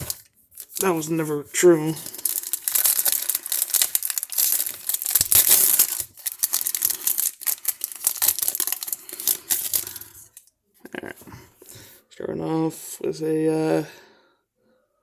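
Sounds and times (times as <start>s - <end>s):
wrapper crinkling and tearing: 0.0s - 10.5s.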